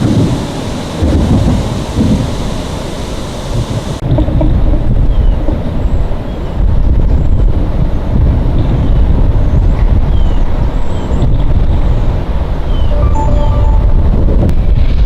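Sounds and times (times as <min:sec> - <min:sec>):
wind buffeting microphone: 0:00.0 - 0:13.0
faint high chirps: 0:12.8 - 0:14.1.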